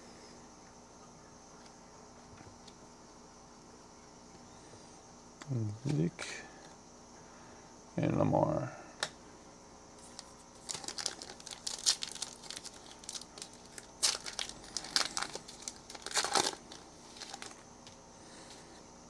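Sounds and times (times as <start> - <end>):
wrapper torn and crinkled: 10.1 - 17.6.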